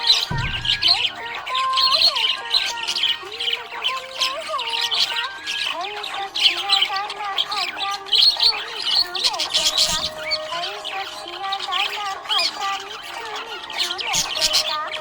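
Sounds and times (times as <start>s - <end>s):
background melody: 0.0s - 4.2s
budgerigar warbling and chirping: 0.0s - 15.0s.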